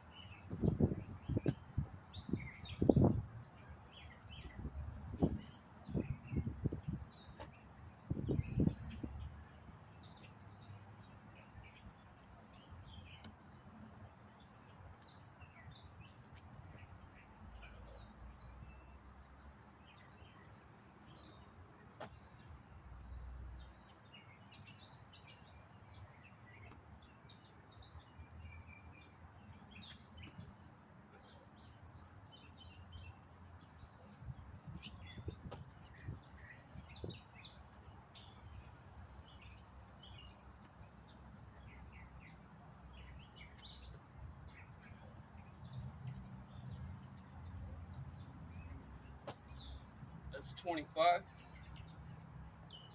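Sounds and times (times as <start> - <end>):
birds chirping: 0.0 - 52.9
wind rumble on microphone: 0.3 - 7.3, 8.0 - 9.4, 34.2 - 37.4.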